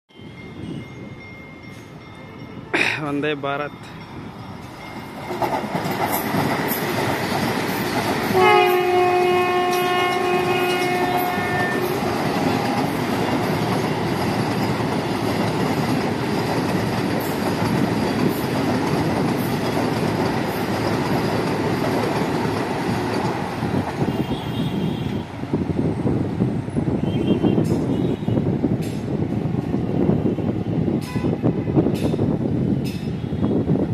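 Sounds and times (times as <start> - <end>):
train wheels rumbling on rail: 0.2 - 33.9
wheels clacking over rail joints: 4.9 - 24.1
train horn blast: 8.3 - 12.1, 24.0 - 25.3.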